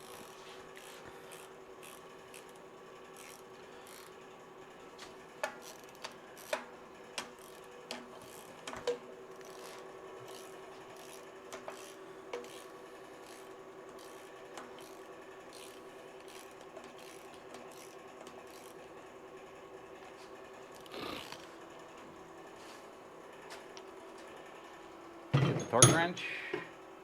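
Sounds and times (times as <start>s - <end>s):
wrench scraping strokes: 0.0s - 2.6s, 3.2s - 4.2s, 5.0s - 18.8s.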